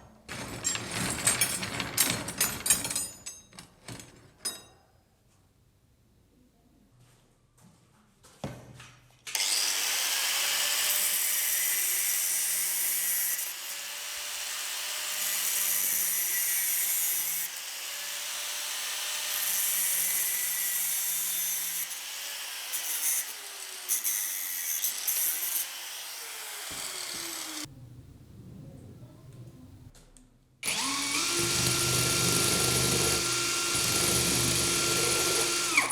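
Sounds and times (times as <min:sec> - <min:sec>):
power tool rasping wood: 0:09.4 - 0:27.7, 0:30.6 - 0:35.9.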